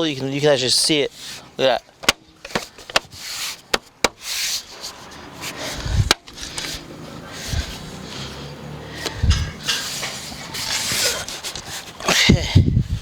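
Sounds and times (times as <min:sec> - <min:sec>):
plastic trim rubbing and scraping: 0:02.0 - 0:08.3, 0:09.0 - 0:12.4.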